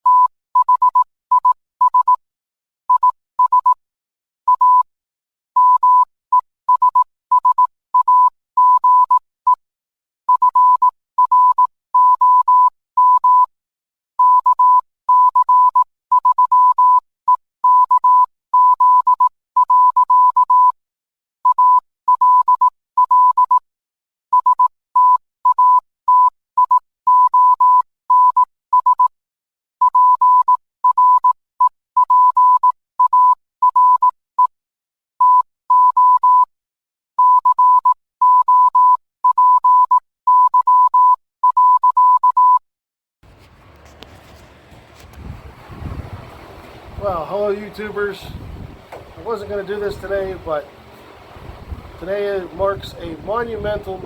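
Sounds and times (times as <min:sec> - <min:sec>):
morse code beeps: 0:00.0 - 0:02.2, 0:02.9 - 0:03.8, 0:04.5 - 0:04.9, 0:05.6 - 0:09.6, 0:10.3 - 0:13.5, 0:14.2 - 0:20.8, 0:21.5 - 0:23.6, 0:24.4 - 0:29.1, 0:29.8 - 0:34.5, 0:35.2 - 0:36.5, 0:37.2 - 0:42.6.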